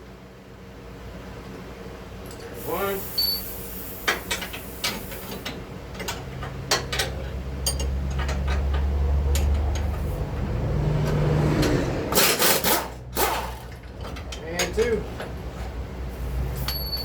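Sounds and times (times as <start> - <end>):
low mechanical hum: 0.0 - 17.0
metal tools clinking and clanking: 5.4 - 10.0, 12.1 - 15.4, 16.6 - 17.0.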